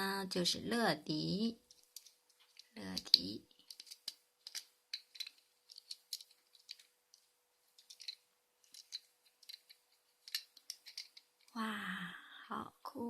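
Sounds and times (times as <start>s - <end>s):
plastic toy clicks and snaps: 2.8s - 6.8s.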